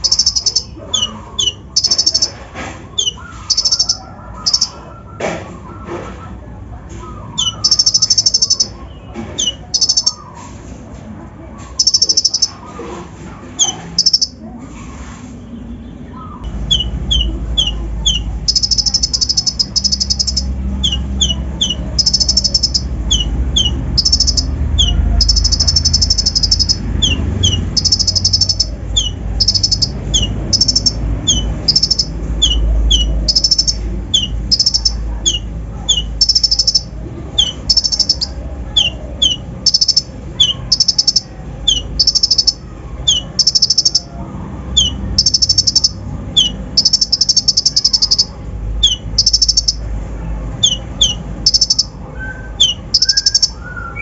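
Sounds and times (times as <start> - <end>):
sunbird singing trills and chirps: 0.0 - 2.3, 3.0 - 4.8, 7.3 - 10.3, 16.2 - 44.1, 44.8 - 49.8, 52.6 - 54.0.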